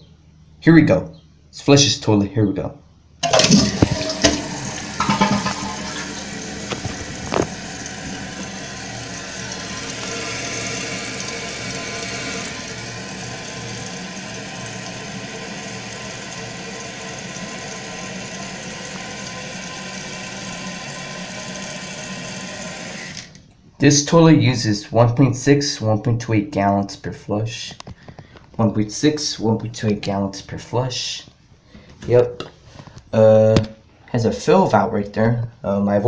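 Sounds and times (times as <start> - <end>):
toilet flushing: 3.2 - 23.4.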